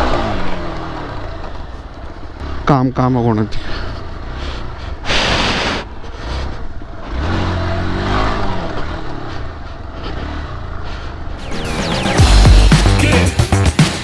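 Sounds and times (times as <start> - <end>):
dirt bike engine revving: 0.0 - 2.7, 5.8 - 14.0.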